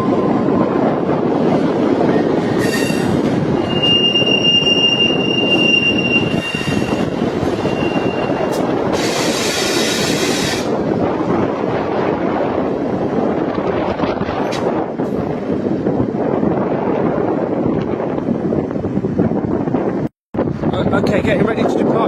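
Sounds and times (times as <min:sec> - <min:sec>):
train engine rumbling: 0:00.0 - 0:19.1
high wheel squeal: 0:02.2 - 0:10.7.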